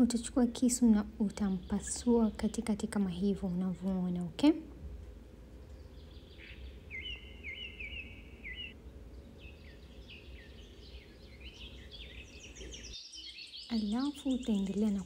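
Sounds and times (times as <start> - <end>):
birds chirping faintly: 0.0 - 15.0
low steady hum: 0.0 - 15.0.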